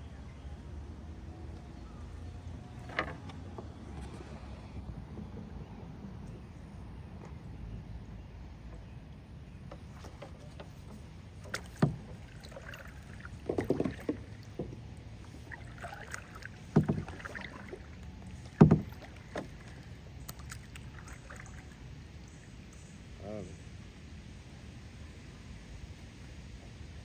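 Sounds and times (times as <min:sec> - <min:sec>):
knocks against a kayak: 0:09.7 - 0:12.8, 0:13.4 - 0:14.9, 0:16.0 - 0:17.8, 0:18.4 - 0:19.8.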